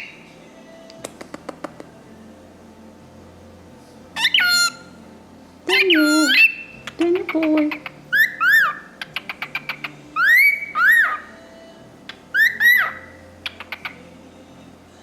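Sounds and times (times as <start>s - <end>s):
cockatiel clicks: 0.9s - 1.9s.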